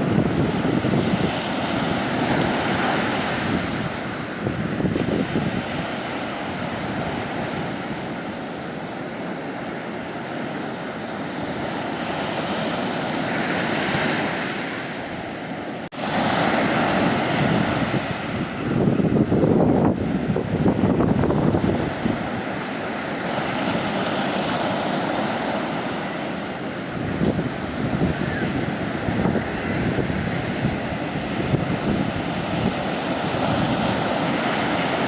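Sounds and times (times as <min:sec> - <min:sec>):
wind buffeting microphone: 0:00.0 - 0:08.3, 0:15.9 - 0:35.0
sea waves breaking on a beach: 0:00.0 - 0:35.0.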